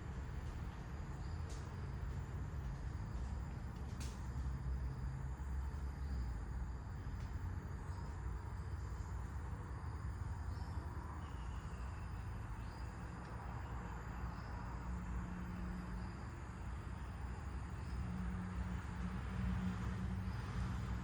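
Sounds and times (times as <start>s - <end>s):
insects trilling: 4.5s - 21.0s.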